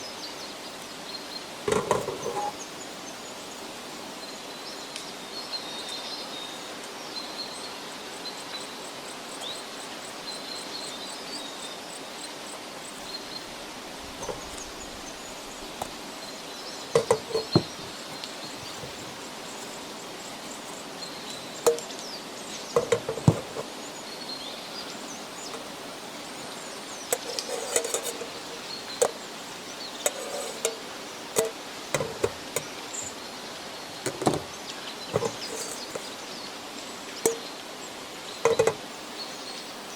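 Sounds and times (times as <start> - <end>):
faint bird chirps: 4.2 - 13.6
sharp knocks and clinks: 17.0 - 18.0, 21.7 - 21.9, 30.0 - 32.7, 37.3 - 37.5.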